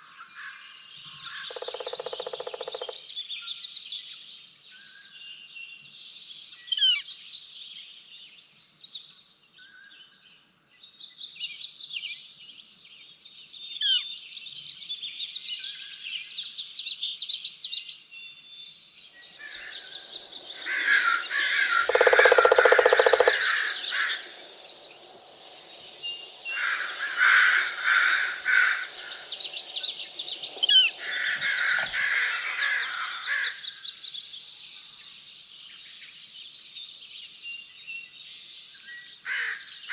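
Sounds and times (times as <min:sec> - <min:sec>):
songbirds chirping and singing: 0:18.0 - 0:39.9
harsh low bird call: 0:19.4 - 0:33.7.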